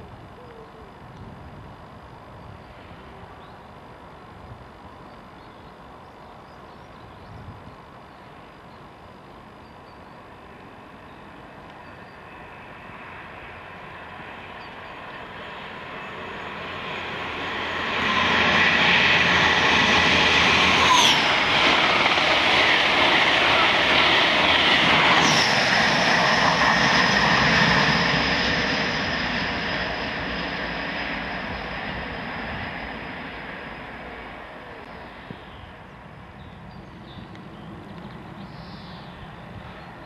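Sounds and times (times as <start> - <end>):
diesel train passing at speed: 8.1 - 40.0
wheels on rail: 9.4 - 35.9.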